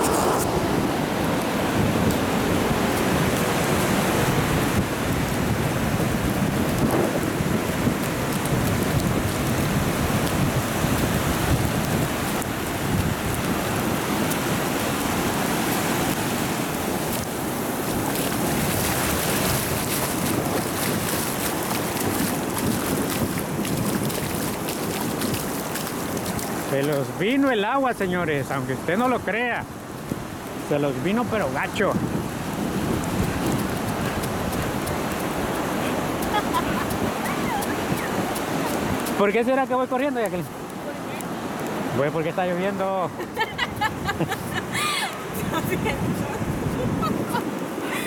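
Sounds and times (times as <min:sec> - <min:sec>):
wind on microphone: 0:00.0 - 0:27.3, 0:28.0 - 0:39.4, 0:43.1 - 0:48.0
surf breaking: 0:00.0 - 0:47.9
rain falling: 0:00.7 - 0:48.0.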